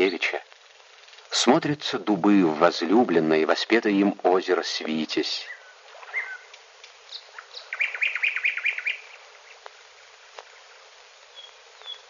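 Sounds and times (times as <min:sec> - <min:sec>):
film soundtrack hiss: 0:00.0 - 0:12.0
songbird chirping: 0:05.3 - 0:12.0.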